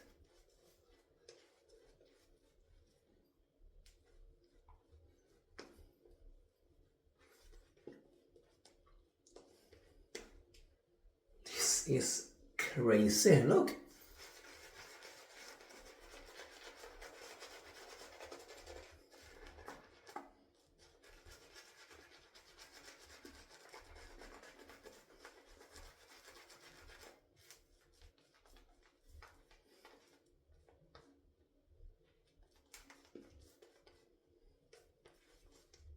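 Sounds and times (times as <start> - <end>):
shaving brush swishing lather: 12.8 - 27.2
light scratches: 14.0 - 30.2.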